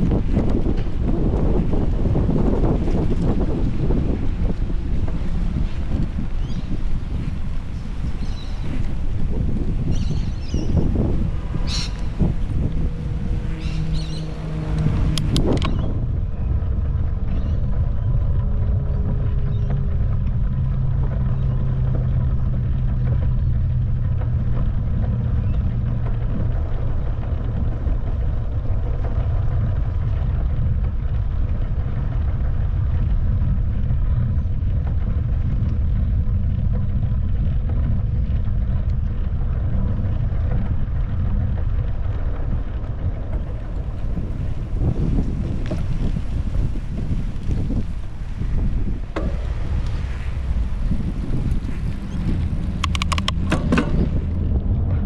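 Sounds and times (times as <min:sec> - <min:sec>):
low steady drone: 0:00.0 - 0:55.0
wind buffeting microphone: 0:00.0 - 0:55.0
sharp clicks: 0:51.5 - 0:54.2.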